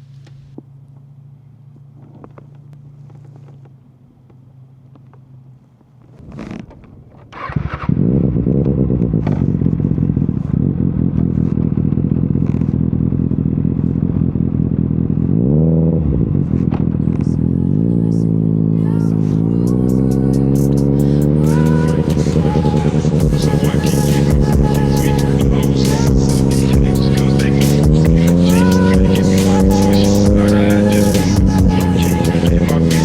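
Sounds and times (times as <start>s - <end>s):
motorcycle engine revving: 6.0s - 33.0s.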